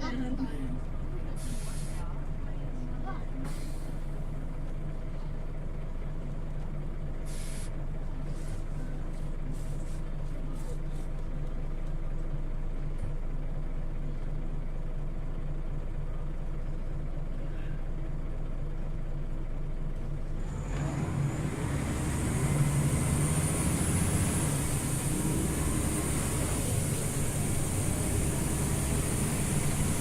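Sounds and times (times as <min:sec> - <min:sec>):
road noise: 0:00.0 - 0:05.6, 0:20.4 - 0:30.0
bus engine running: 0:00.0 - 0:30.0.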